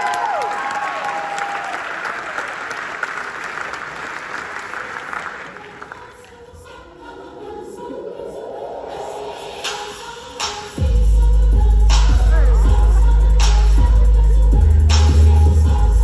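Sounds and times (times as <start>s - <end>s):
audience clapping: 0.0s - 6.2s
person singing: 5.6s - 16.0s.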